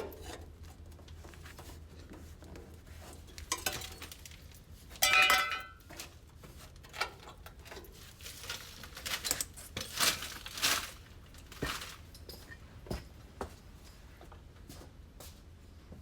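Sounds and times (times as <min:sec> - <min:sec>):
scraping and rustling handling: 0:00.1 - 0:12.6
metal clink: 0:05.0 - 0:05.8.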